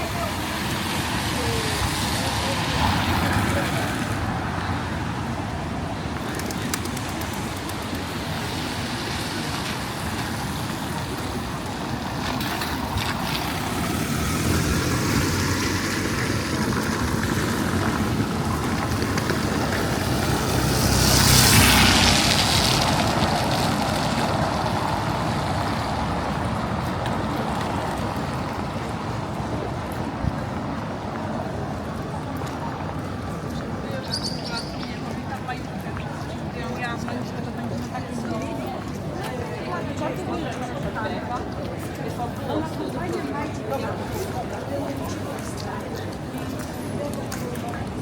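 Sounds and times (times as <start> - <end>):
steady traffic noise: 0.0 - 48.0
vehicle passing close: 12.3 - 29.0.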